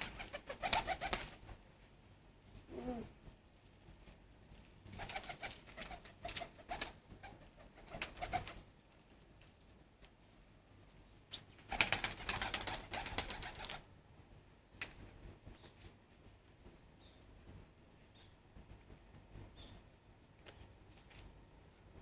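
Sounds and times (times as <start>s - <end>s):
pigeons flapping wings: 0.0s - 1.6s, 4.9s - 8.7s, 11.3s - 13.9s
pigeons cooing: 2.7s - 3.2s.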